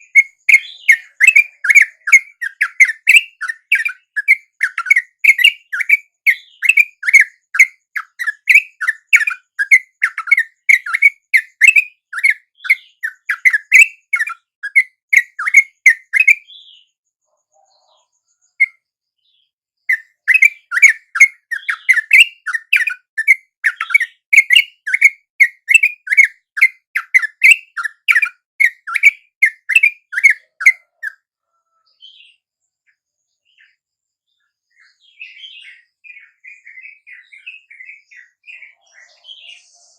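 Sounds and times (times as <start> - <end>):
bird chattering calls: 0.0 - 16.5, 19.9 - 31.2.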